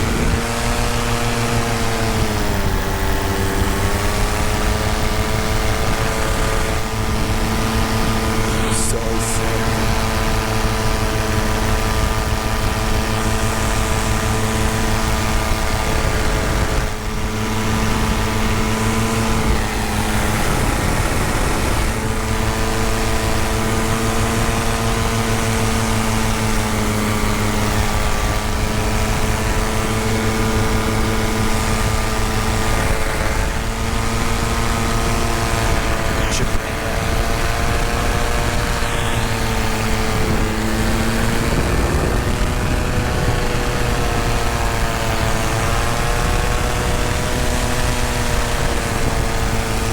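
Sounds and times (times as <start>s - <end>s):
paramotor engine and propeller: 0.0s - 49.9s
wind rushing over microphone: 0.0s - 49.9s.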